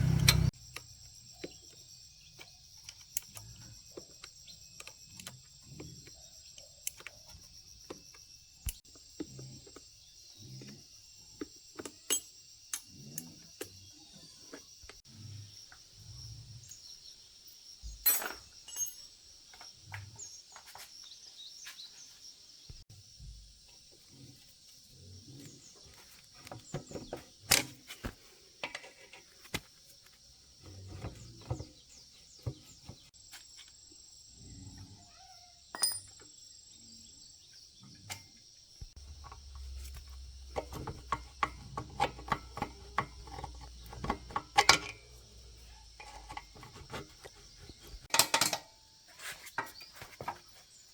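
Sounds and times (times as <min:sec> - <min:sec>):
metal parts and tools clinking: 0:00.0 - 0:00.5, 0:11.8 - 0:13.7, 0:17.9 - 0:19.2, 0:35.7 - 0:36.3, 0:39.1 - 0:47.3, 0:47.9 - 0:48.8
insects droning: 0:00.0 - 0:50.9.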